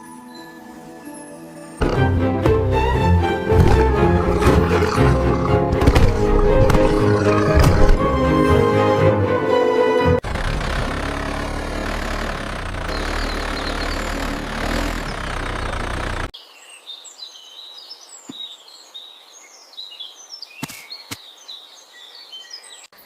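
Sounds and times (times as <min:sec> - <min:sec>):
birds chirping: 0:01.8 - 0:08.6, 0:12.1 - 0:23.0
loud engine rumble: 0:01.8 - 0:16.3.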